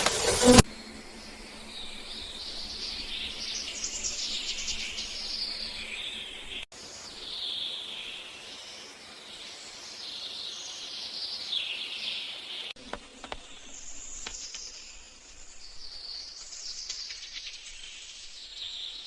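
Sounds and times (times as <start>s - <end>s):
insects chirping: 0.0s - 7.4s
birds chirping: 0.0s - 8.3s.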